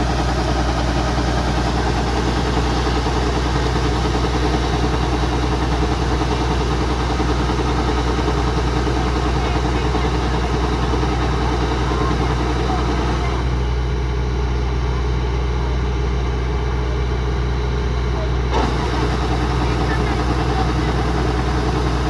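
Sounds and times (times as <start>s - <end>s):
combine harvester diesel engine: 0.0s - 22.0s.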